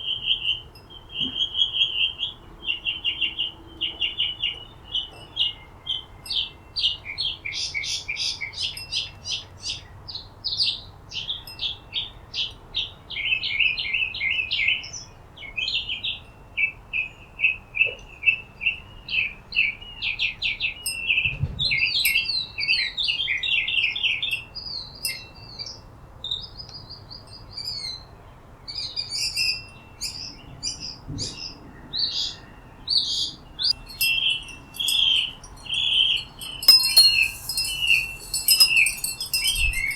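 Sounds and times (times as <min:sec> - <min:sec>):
small birds chirping: 0:21.8 - 0:39.9.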